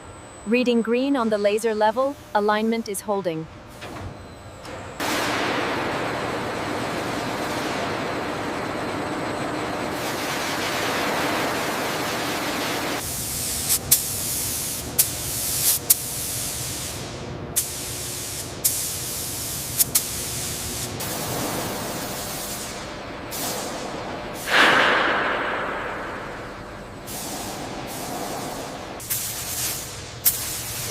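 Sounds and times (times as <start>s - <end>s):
high-pressure spray hissing: 10.0s - 17.0s, 17.6s - 22.8s
loud rush: 24.5s - 27.8s.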